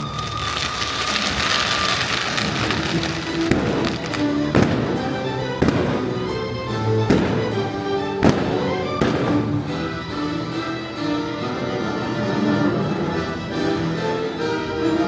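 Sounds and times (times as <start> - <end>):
fireworks bangs: 0.0 - 10.2
orchestral music: 0.0 - 15.0.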